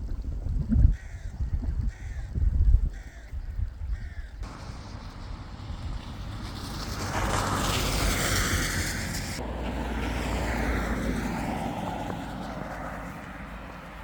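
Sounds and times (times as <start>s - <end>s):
vehicle passing by: 4.4s - 14.0s.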